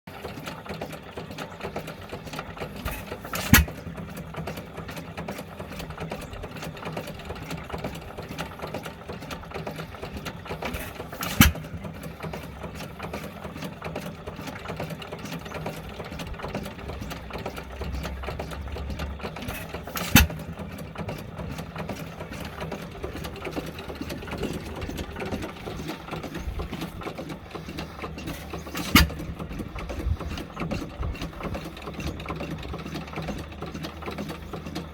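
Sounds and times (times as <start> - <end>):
stationary engine clattering: 0.1 - 34.9
engine firing bang: 18.9 - 20.6.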